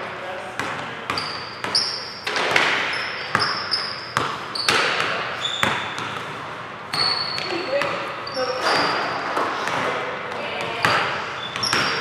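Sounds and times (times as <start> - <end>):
sneaker squeaks: 0.6 - 12.0
basketball bouncing on hardwood floor: 4.2 - 12.0.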